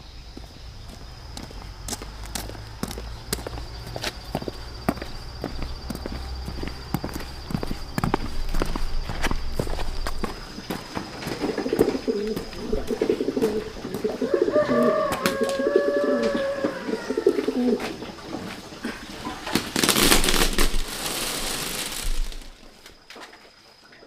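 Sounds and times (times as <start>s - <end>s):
bird cooing: 11.2s - 18.0s.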